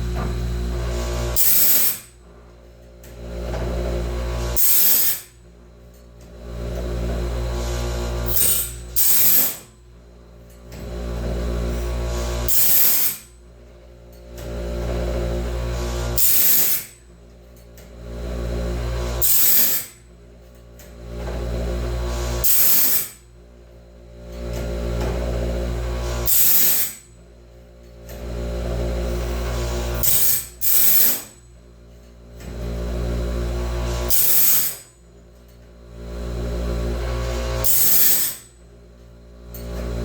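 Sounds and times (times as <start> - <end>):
grinding wheel on saw tooth: 0.0 - 2.1, 4.1 - 5.4, 7.1 - 9.7, 11.2 - 13.3, 15.6 - 17.0, 18.7 - 20.0, 21.5 - 23.2, 25.9 - 27.1, 28.8 - 31.4, 33.7 - 34.8, 36.8 - 38.5
electric motor hum: 0.0 - 2.2, 39.3 - 40.0.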